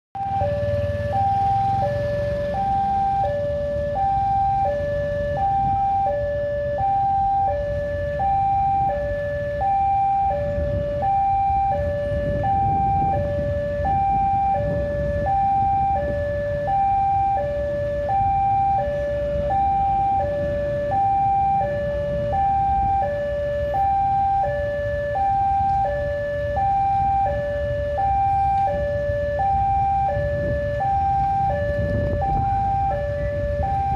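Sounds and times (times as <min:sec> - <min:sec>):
level-crossing two-tone alarm: 0:00.2 - 0:33.9.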